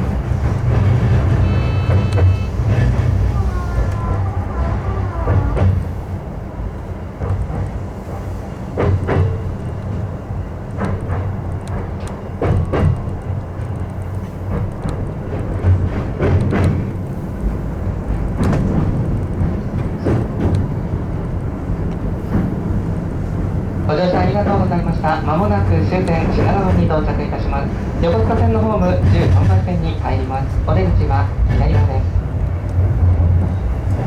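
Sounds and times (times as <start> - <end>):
train wheels rumbling on rails: 0.0 - 34.0
wheels clicking over rail joints: 8.7 - 34.0.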